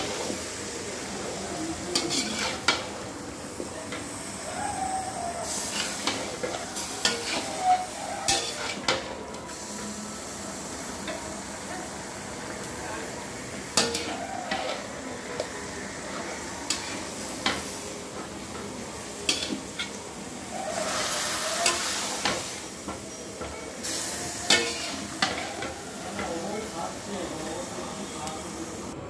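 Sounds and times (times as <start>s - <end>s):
chicken sizzling in oil: 0.0s - 29.0s
metal spatula scraping a pan: 2.0s - 2.9s, 5.5s - 9.1s, 13.8s - 15.0s, 19.3s - 22.6s.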